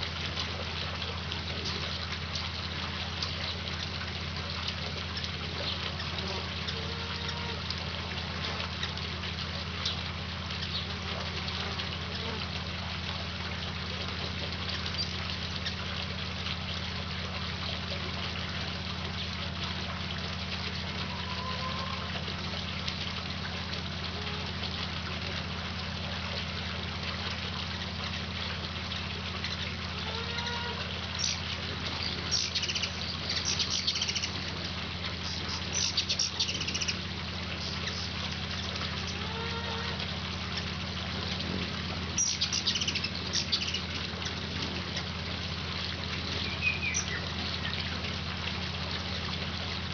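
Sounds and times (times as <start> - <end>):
steady low hum and hiss: 0.0 - 49.9
hummingbirds chattering: 10.6 - 12.5, 31.1 - 34.5, 35.2 - 39.3, 42.2 - 45.1, 46.3 - 47.9.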